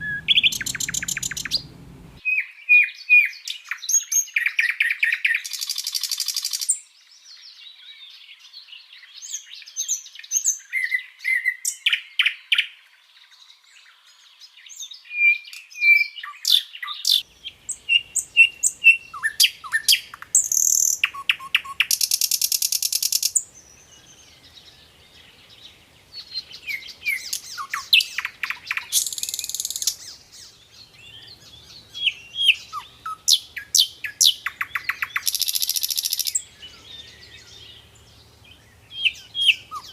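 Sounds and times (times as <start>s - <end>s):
flycatcher singing: 0.0s - 2.2s, 17.1s - 39.9s
loud buzzy bird trills: 0.0s - 2.2s, 26.5s - 39.9s.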